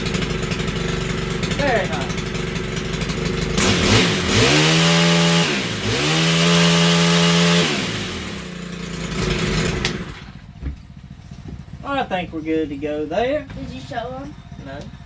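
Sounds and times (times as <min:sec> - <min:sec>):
pole saw engine revving: 0:00.0 - 0:10.4.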